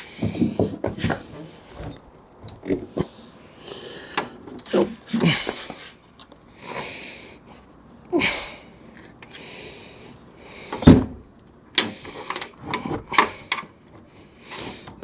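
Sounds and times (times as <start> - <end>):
heavy door clunk: 10.8 - 11.2.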